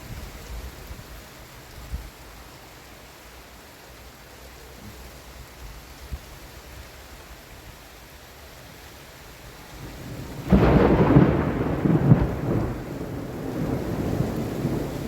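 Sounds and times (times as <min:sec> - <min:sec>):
rain hiss: 0:00.0 - 0:15.0
thunder clap and rumble: 0:09.8 - 0:15.0.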